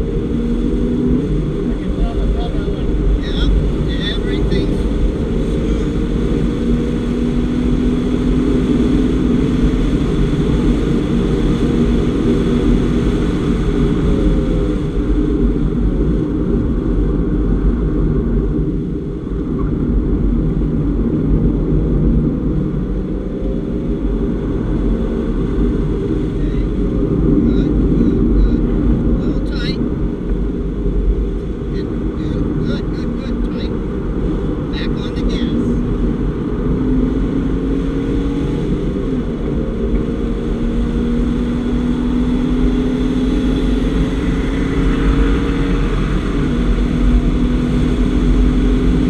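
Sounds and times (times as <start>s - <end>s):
car engine running hard: 0.0s - 49.0s
road and wind noise: 0.0s - 49.0s.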